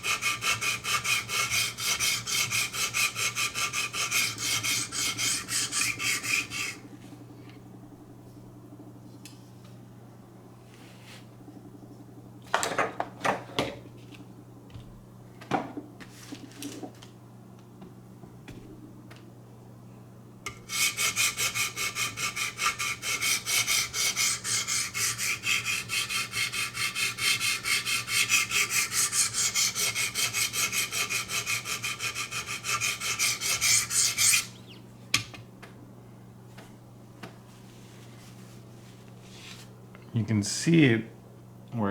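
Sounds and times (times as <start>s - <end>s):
sharpening stone grinding knife edge: 20.7s - 34.6s.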